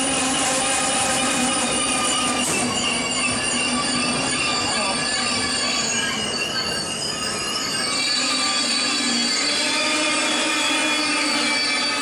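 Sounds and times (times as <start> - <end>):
high squeal of train wheels: 0.0 - 12.0.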